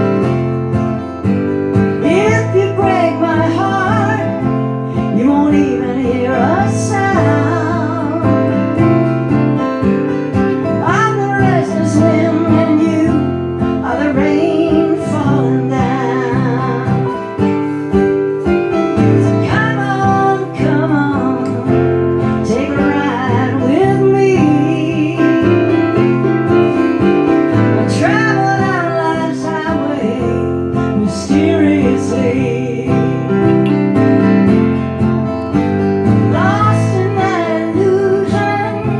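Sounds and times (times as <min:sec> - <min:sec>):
acoustic guitar: 0:00.0 - 0:38.9
woman singing with vibrato: 0:02.0 - 0:09.0, 0:10.8 - 0:17.8, 0:19.0 - 0:26.1, 0:27.8 - 0:33.6, 0:36.2 - 0:38.9.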